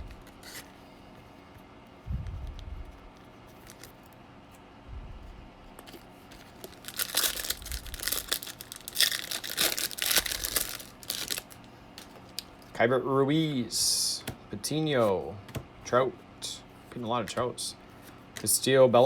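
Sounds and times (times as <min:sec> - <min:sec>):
foil wrapper tearing and crinkling: 0:05.8 - 0:12.6.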